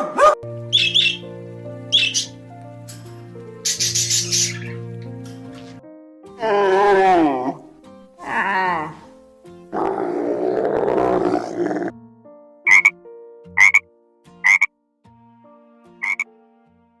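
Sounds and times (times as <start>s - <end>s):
soft music tones: 0.0s - 17.0s
frog croaking: 12.7s - 13.0s, 13.6s - 13.8s, 14.4s - 14.7s, 16.0s - 16.2s.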